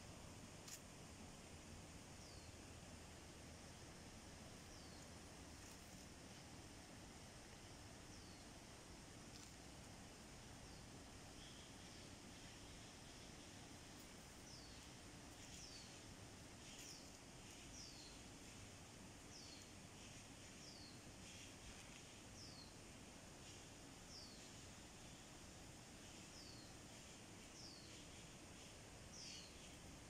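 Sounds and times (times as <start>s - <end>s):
background hiss: 0.0s - 30.0s.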